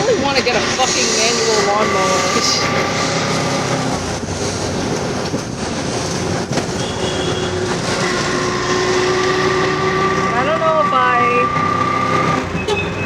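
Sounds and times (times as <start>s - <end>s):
wind noise: 0.0s - 10.2s
vehicle road rumble and rattle: 0.0s - 13.0s.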